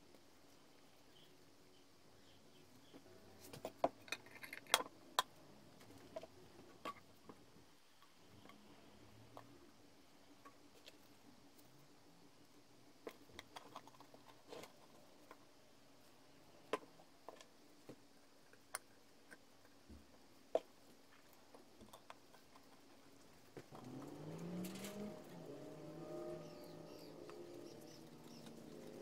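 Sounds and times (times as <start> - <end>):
faint steady hum: 0.0 - 29.0
small hard objects clicking: 3.5 - 5.3.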